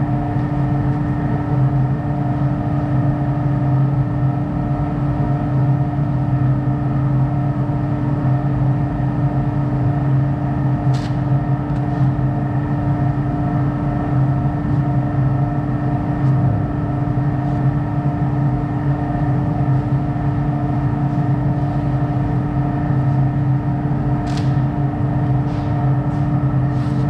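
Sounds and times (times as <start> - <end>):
sharp click: 24.2 - 24.6.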